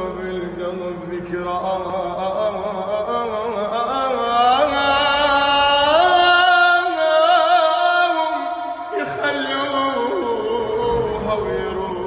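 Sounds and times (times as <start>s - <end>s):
man singing ornamented lament: 0.0s - 12.0s.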